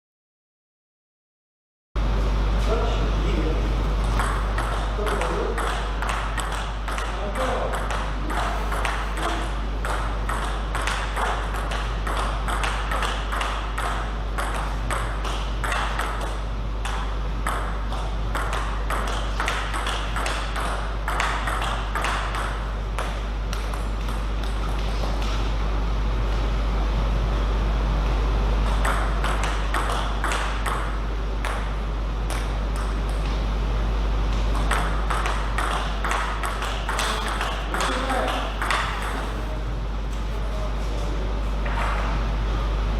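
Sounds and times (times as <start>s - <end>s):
steady low hum: 2.0s - 42.9s
table tennis balls clicking: 4.0s - 24.9s, 28.6s - 31.7s, 34.5s - 39.4s.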